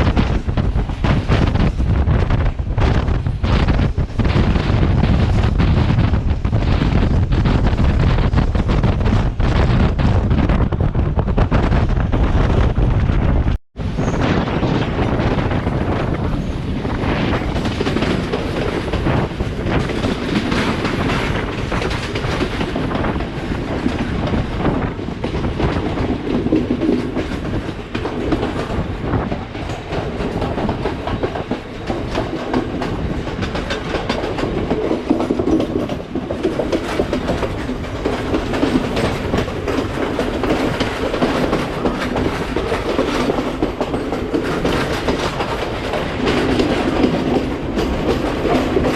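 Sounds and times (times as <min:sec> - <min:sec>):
train rolling rumble: 0:00.0 - 0:48.9
wheels clattering over rail joints: 0:14.0 - 0:48.9.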